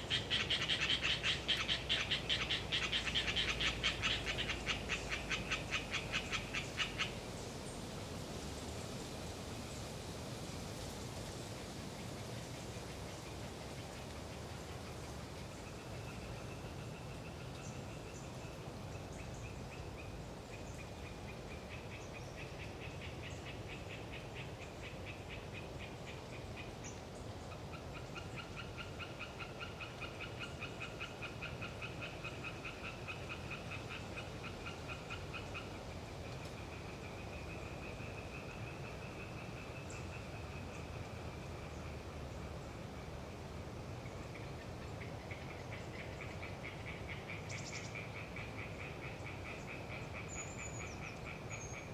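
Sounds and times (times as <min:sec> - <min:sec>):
tree frogs trilling: 0:00.0 - 0:07.8, 0:12.0 - 0:51.9.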